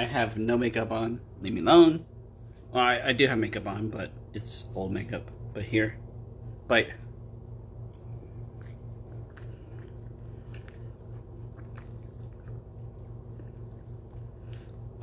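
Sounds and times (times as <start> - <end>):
low hum: 0.0 - 15.0
person chewing food: 7.8 - 15.0
mouth clicks and smacks: 7.9 - 14.9.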